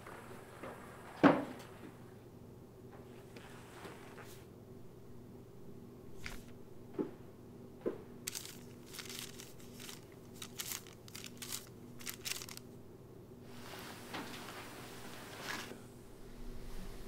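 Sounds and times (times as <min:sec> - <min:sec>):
faint steady hum: 0:00.0 - 0:17.0
book pages rustling: 0:08.3 - 0:12.6.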